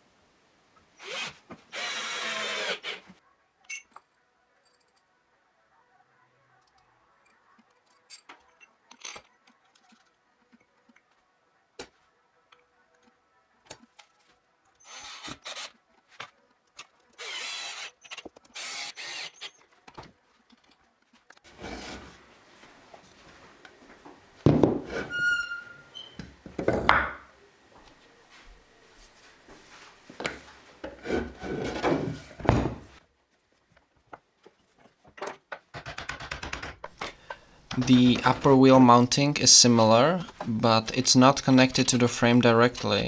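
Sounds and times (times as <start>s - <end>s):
scraping on wood and metal: 21.4s - 27.3s, 29.4s - 33.0s
knocking: 24.4s - 27.3s, 30.8s - 33.0s.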